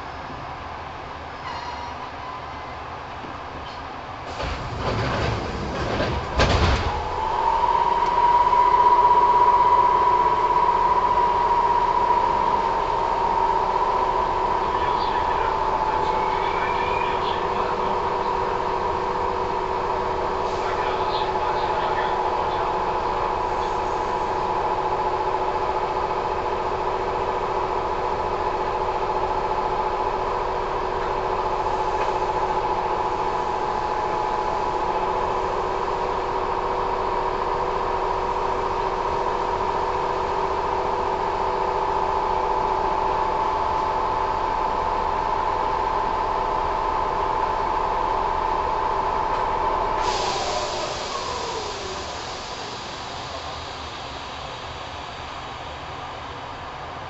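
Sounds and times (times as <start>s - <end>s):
train equipment hum: 0.0s - 57.0s
hiss: 50.0s - 55.5s.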